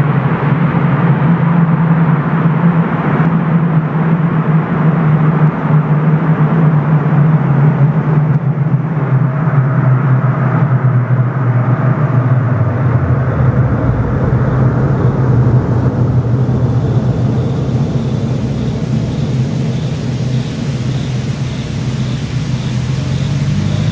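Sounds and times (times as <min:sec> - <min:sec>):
deep car exhaust drone: 0:02.2 - 0:23.9
road noise: 0:10.8 - 0:23.9.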